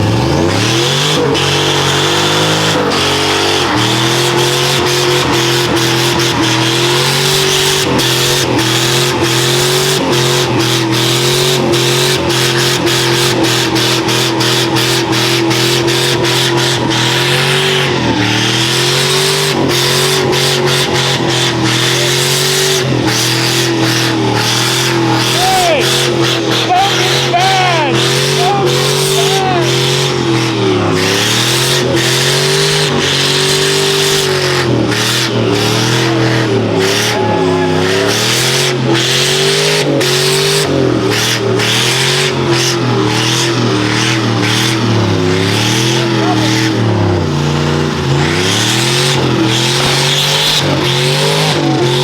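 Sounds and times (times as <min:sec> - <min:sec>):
engine at high revs: 0:00.0 - 0:52.0
tyres spinning and squealing: 0:00.0 - 0:52.0.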